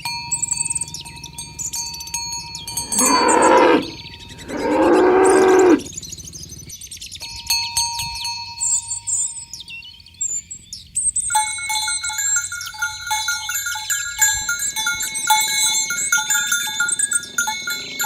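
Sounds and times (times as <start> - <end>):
small bells clinking: 0.0 - 5.9, 7.2 - 9.8, 11.1 - 18.0
birds chirping: 0.2 - 11.4.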